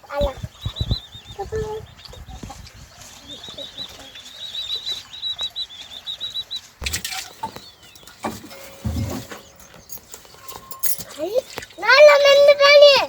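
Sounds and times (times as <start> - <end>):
small bird twittering: 0.0 - 8.3.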